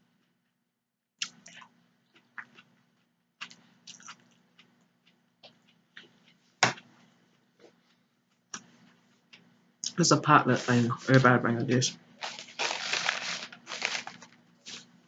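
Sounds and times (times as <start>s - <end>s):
wet chewing mouth smacks: 3.4s - 4.3s.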